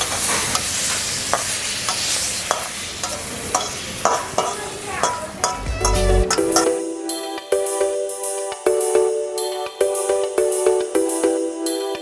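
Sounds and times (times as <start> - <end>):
food sizzling in a pan: 0.0 - 4.0.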